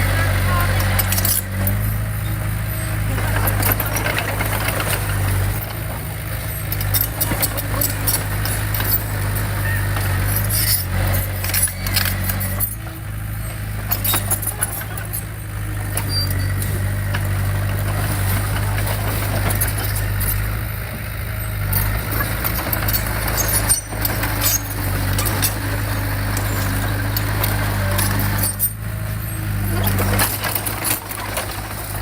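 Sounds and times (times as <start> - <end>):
diesel engine running: 0.0 - 32.0
metallic clanks and clicks: 13.8 - 21.0, 21.6 - 32.0.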